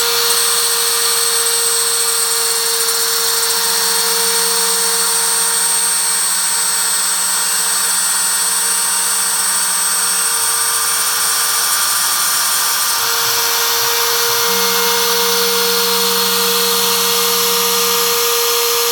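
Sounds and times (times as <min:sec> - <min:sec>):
motor hum: 0:00.0 - 0:18.9
router spindle high whine: 0:00.0 - 0:18.9.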